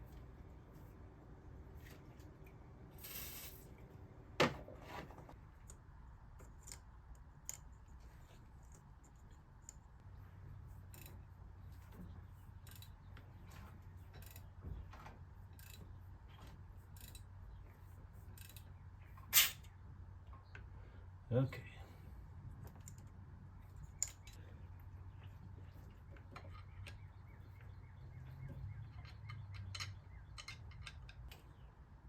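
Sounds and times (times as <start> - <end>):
brief hiss: 3.0 - 3.7
hand tools clicking and knocking: 28.4 - 31.7.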